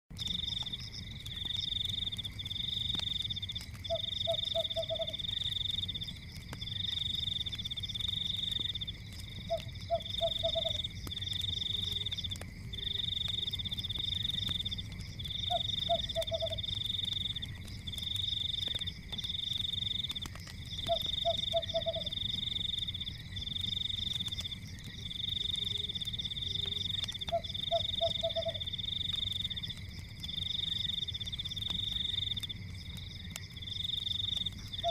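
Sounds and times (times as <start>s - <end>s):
wood fire crackling rumble: 0.1s - 34.9s
frog pulsed lower call: 3.9s - 5.2s, 9.5s - 10.8s, 15.5s - 16.7s, 20.9s - 22.2s, 25.4s - 28.6s.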